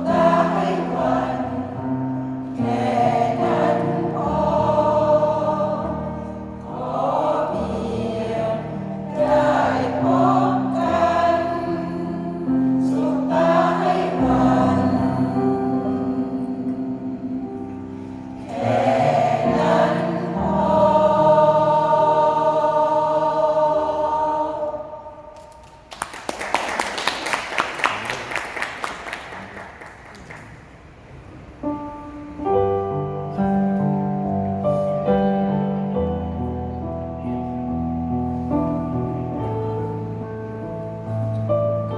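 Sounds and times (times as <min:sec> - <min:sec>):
choir singing held chords: 0:00.0 - 0:25.6
audience applause: 0:25.6 - 0:30.8
music with held notes: 0:31.6 - 0:41.9.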